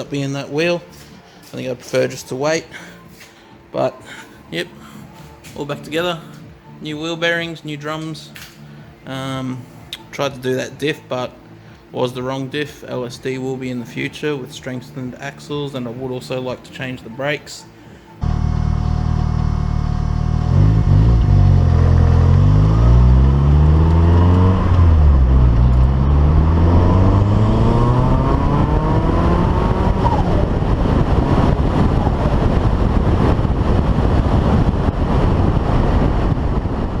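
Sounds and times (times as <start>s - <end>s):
road noise: 0.0s - 12.1s, 13.4s - 37.0s
car engine accelerating: 18.2s - 37.0s.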